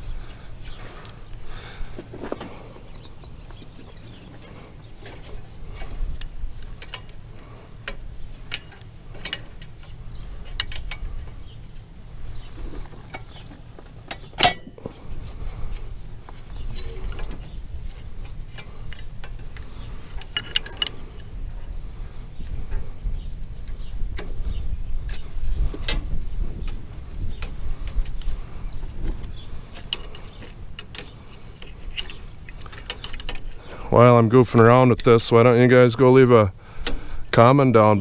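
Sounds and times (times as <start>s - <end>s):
wind rumble on microphone: 14.9s - 33.6s.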